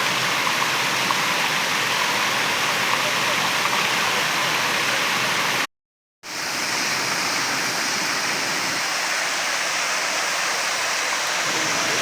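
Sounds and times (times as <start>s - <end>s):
waterfall pouring: 0.0s - 5.7s, 6.3s - 12.0s.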